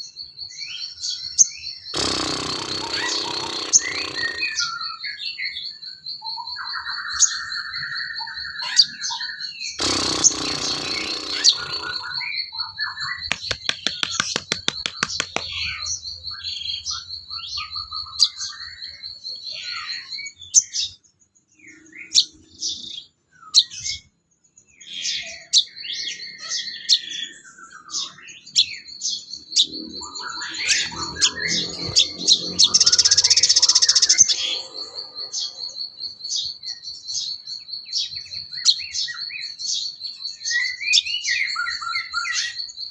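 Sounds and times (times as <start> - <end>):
songbirds chirping: 0.0 - 42.9
harsh rattling burst: 2.0 - 4.6, 9.8 - 12.2, 13.3 - 15.6
high pulsing trill: 2.0 - 4.6.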